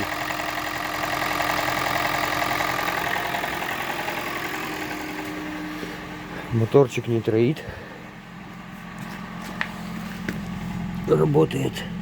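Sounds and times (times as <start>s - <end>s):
rattling engine knock: 0.0s - 5.6s, 9.5s - 11.1s
car engine idling: 0.0s - 12.0s.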